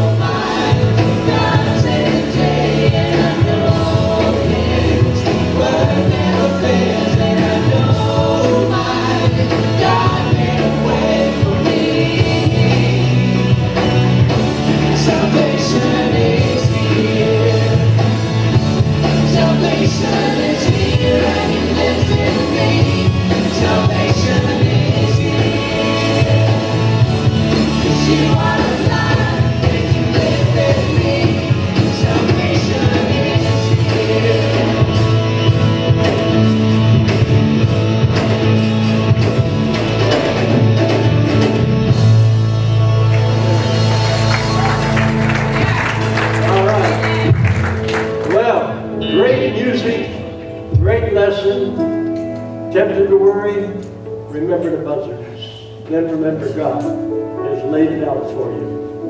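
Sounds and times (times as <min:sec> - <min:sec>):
congregation singing gospel song: 0:00.0 - 0:51.8
band accompaniment: 0:00.0 - 0:59.0.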